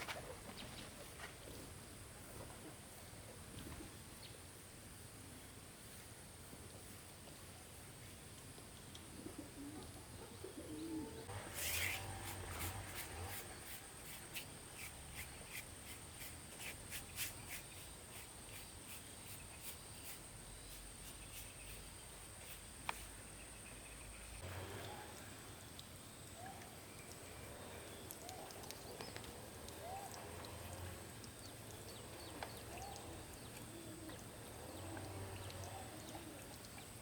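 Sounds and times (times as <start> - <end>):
dove cooing: 9.2 - 11.3, 32.6 - 36.7.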